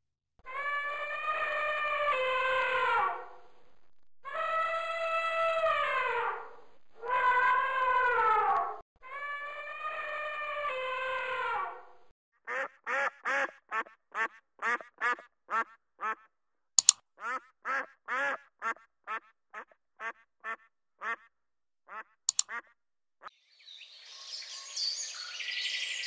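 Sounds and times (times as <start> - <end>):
ducks quacking: 12.5 - 16.2, 17.2 - 21.3.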